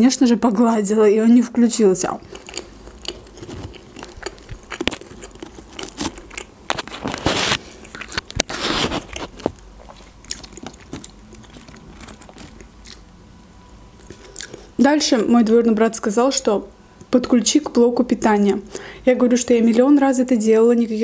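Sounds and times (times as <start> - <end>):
crunching of crispy food: 2.2 - 13.1.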